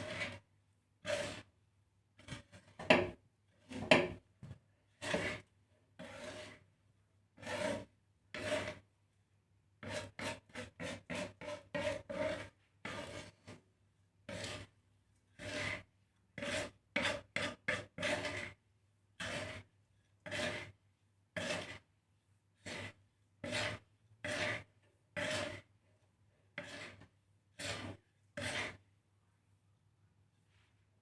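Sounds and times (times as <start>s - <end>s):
seeds scraped in dry pan: 0.0s - 0.4s, 1.0s - 1.5s, 4.9s - 6.7s, 7.4s - 8.8s, 9.8s - 13.6s, 14.3s - 18.6s, 19.2s - 20.8s, 21.4s - 21.9s, 22.6s - 25.7s, 26.6s - 28.8s.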